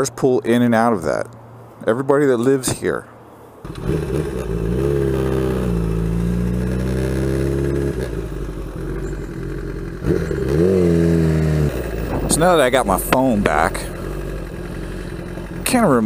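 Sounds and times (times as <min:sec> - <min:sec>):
motorcycle engine revving: 0:03.6 - 0:16.0.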